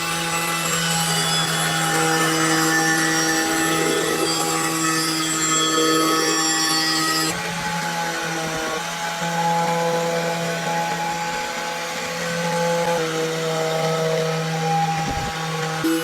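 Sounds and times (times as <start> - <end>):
power tool running: 0.0 - 16.0.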